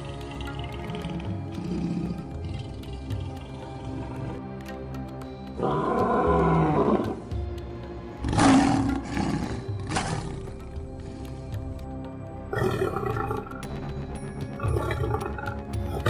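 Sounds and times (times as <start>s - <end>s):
background music: 0.0s - 16.0s
lion roaring: 0.6s - 4.0s, 5.6s - 7.3s, 8.2s - 10.6s, 12.5s - 13.6s.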